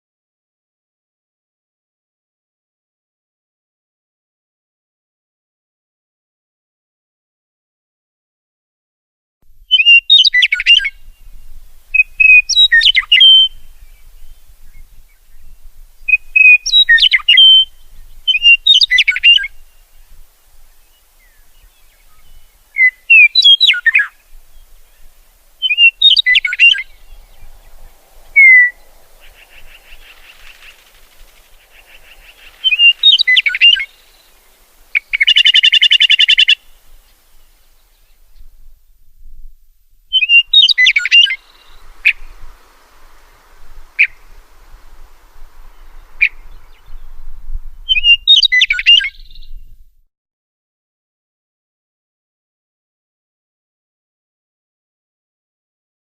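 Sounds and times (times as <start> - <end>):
bird singing: 9.7 - 38.5, 40.1 - 49.7.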